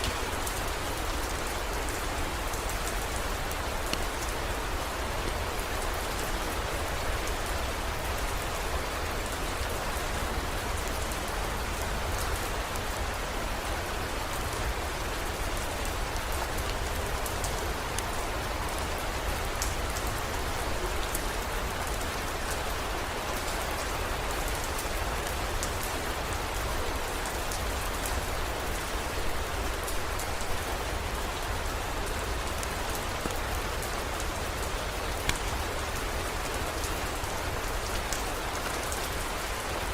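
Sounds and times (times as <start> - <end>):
heavy rain: 0.0 - 39.9
rain drop ticks: 35.0 - 36.0.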